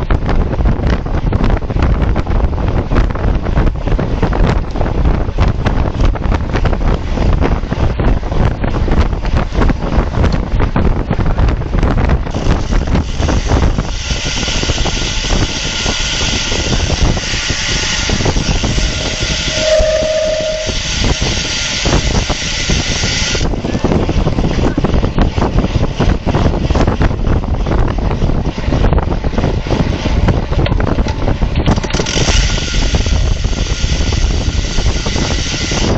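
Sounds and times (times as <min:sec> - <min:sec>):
wind buffeting microphone: 0:00.0 - 0:35.9
short single tone: 0:18.7 - 0:21.5.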